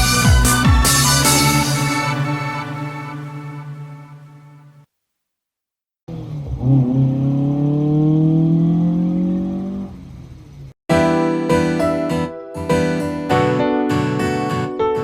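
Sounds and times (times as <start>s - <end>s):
car engine accelerating: 6.1s - 10.7s.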